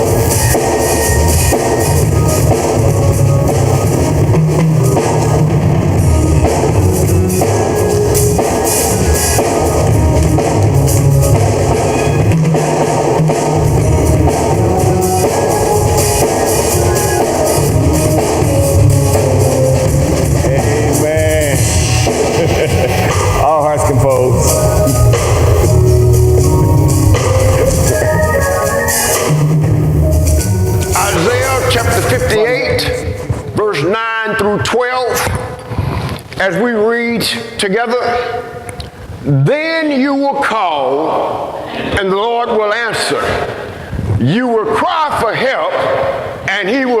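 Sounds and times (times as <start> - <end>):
rock band playing: 0.0 - 32.4.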